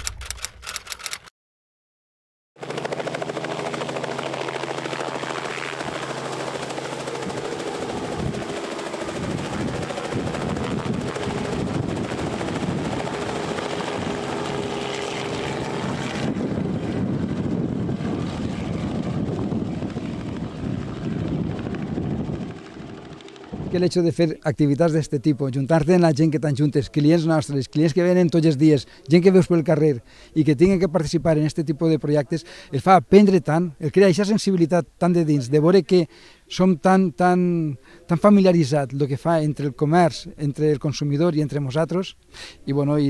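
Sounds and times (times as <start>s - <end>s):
helicopter rotor and engine: 2.6s - 24.5s.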